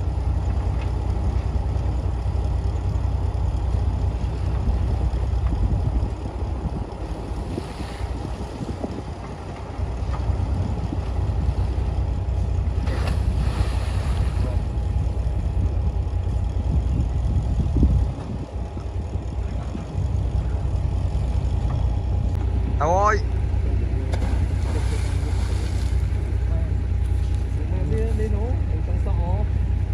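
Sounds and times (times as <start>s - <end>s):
diesel engine rumbling: 0.0s - 29.9s
wind buffeting microphone: 4.0s - 22.8s.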